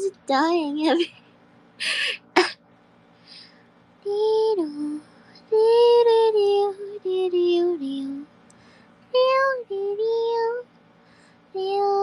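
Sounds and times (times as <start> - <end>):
woman singing wordless tune: 4.0 - 8.4.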